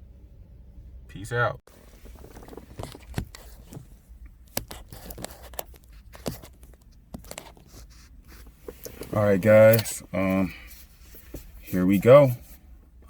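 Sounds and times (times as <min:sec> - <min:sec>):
handling clicks and taps: 0:02.4 - 0:07.7.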